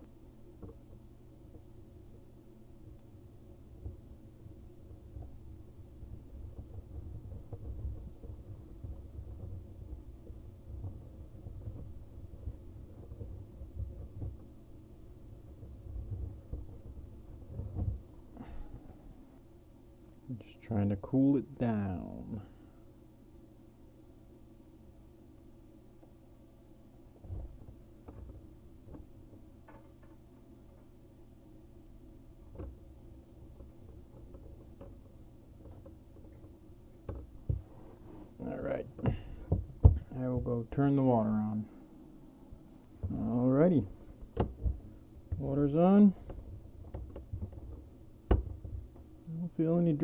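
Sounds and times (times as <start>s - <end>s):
soldering torch flame rumbling: 0.0s - 22.8s, 30.2s - 50.0s
low steady hum: 0.0s - 50.0s.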